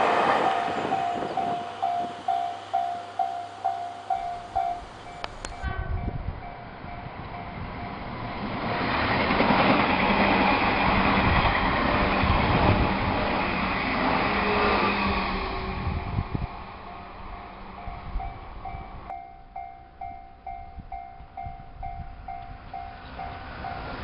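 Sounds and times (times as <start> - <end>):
warning bell dinging: 0.0 - 8.1, 16.9 - 23.9
train rumbling past: 0.0 - 24.0.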